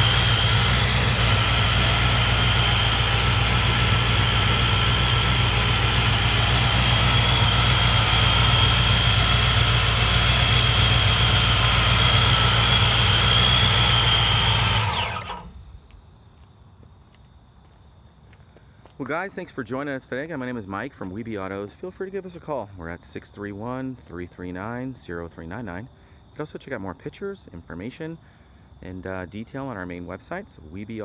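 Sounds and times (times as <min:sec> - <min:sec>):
engine idling with high whine: 0:00.0 - 0:15.8.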